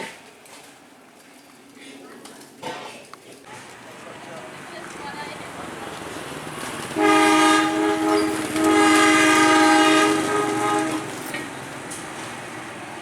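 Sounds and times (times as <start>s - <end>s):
train horn blasts: 5.5s - 13.0s.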